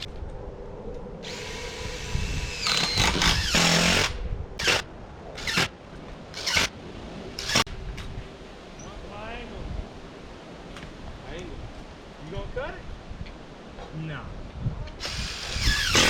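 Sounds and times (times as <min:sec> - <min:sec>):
power tool whining: 0:01.2 - 0:04.8, 0:05.4 - 0:05.7, 0:06.3 - 0:06.7, 0:07.4 - 0:07.7, 0:15.0 - 0:16.0.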